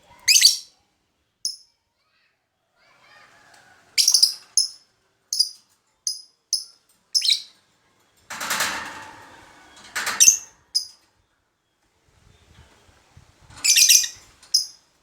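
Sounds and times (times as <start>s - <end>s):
lovebird chirping: 4.0s - 7.5s, 10.2s - 10.9s, 13.6s - 14.8s.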